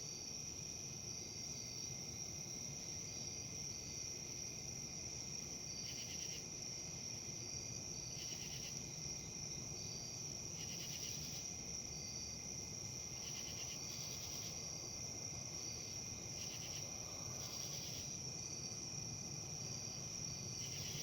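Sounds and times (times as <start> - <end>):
insect chorus trilling: 5.8 - 6.4, 8.1 - 21.0.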